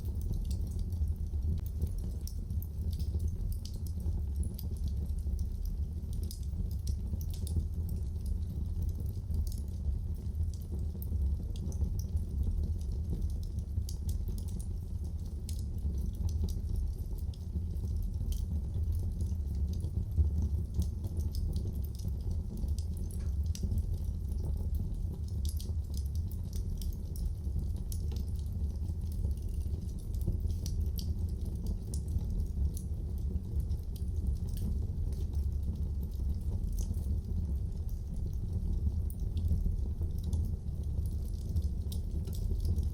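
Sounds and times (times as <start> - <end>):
low rumble of flames: 0.0 - 42.9
wood fire pops and snaps: 0.1 - 8.4, 20.7 - 42.9.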